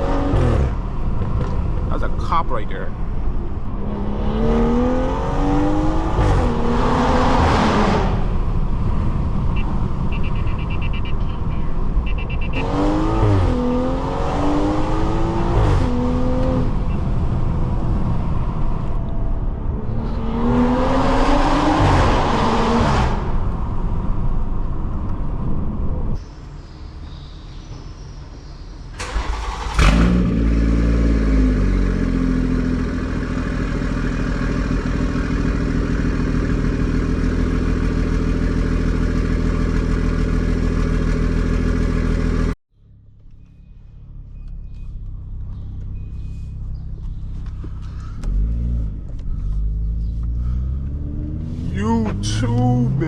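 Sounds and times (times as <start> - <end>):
car engine accelerating hard: 3.6 - 8.4, 12.6 - 19.0, 19.8 - 23.4, 29.0 - 42.6, 47.4 - 53.0.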